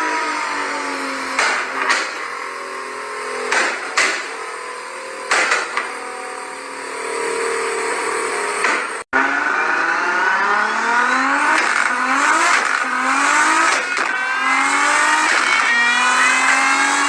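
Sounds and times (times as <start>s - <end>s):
car engine running: 0.0s - 17.0s
exhaust pops and cracks: 11.6s - 14.2s, 15.0s - 16.0s.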